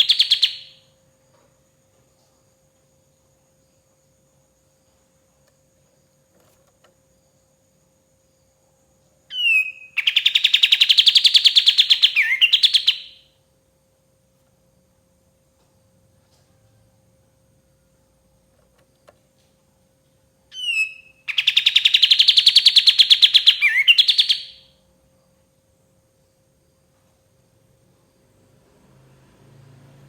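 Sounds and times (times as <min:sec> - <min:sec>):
bird whistling and trilling: 0:00.0 - 0:00.8, 0:09.3 - 0:13.2, 0:20.5 - 0:24.7.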